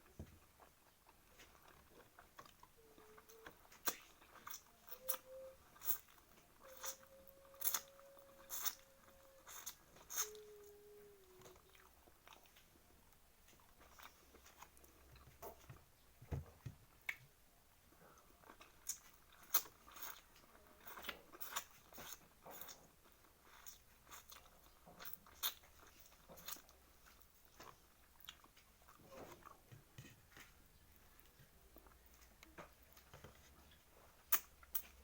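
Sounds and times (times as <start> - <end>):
person chewing food: 0.0 - 15.9, 16.9 - 35.0.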